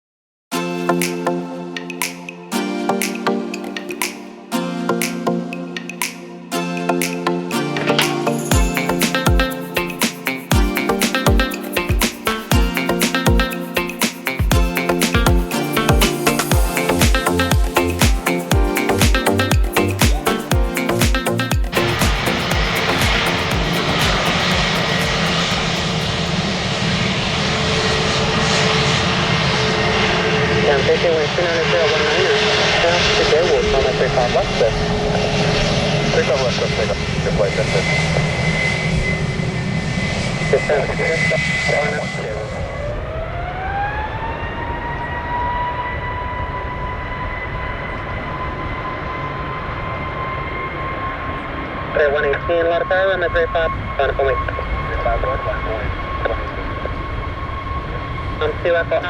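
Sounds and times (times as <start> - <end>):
music with a regular beat: 0.8 - 25.7
jet engines roaring with whine: 5.0 - 59.0.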